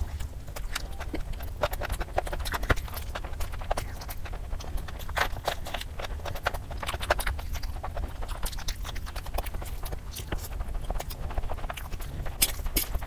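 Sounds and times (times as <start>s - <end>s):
chewing with wet lip smacks: 0.0s - 13.0s.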